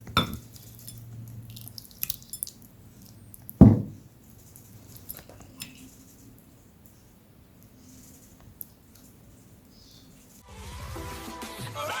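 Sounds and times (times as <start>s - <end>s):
dull thump: 3.6s - 4.1s.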